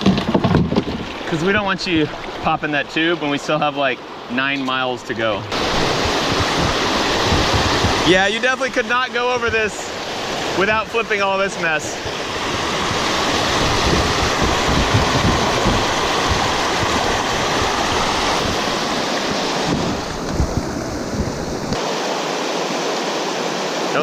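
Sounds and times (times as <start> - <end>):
wind buffeting microphone: 5.4 - 11.1, 11.8 - 21.8
river rapids roaring over rocks: 5.4 - 24.0.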